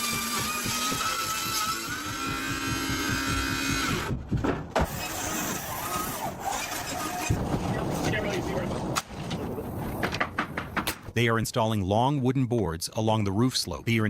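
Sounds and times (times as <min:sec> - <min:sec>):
chainsaw cutting work sound: 0:00.0 - 0:04.1, 0:04.8 - 0:07.4
chainsaw engine running: 0:00.0 - 0:04.1.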